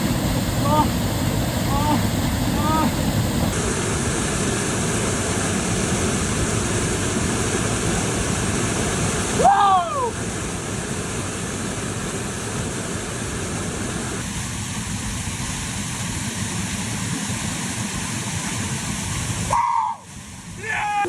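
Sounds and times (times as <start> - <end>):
short voice cry: 1.7 - 2.0, 9.4 - 10.2, 19.5 - 20.0.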